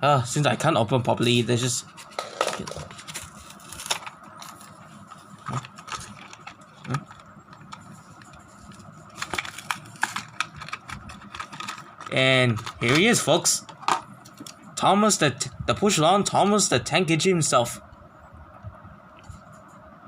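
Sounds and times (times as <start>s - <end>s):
faint steady hum: 0.0s - 20.0s
plastic and cardboard packaging rattling: 2.0s - 14.0s.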